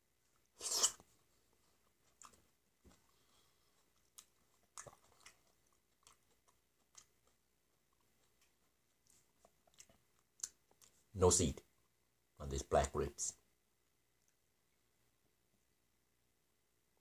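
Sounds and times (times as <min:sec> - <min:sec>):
soft chewing: 0:00.1 - 0:12.2, 0:13.8 - 0:15.8
wet bite of grape: 0:00.6 - 0:01.1
mouth clicks and smacks: 0:04.0 - 0:11.0.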